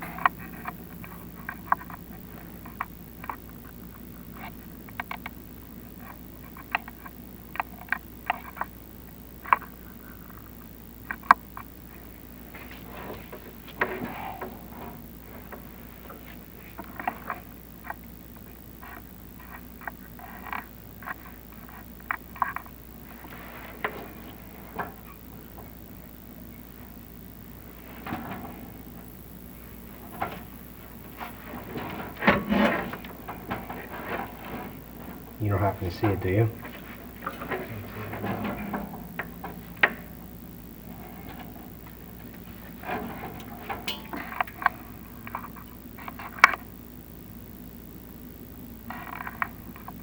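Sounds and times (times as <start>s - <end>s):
cable scraping in flue: 0.0s - 46.8s
scraping: 27.5s - 46.4s.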